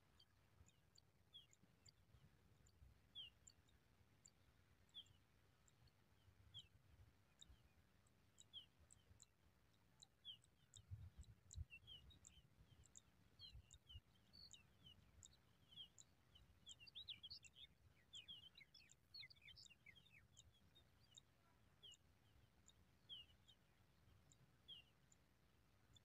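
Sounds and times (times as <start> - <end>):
repeated very high ticks: 7.3 - 16.2.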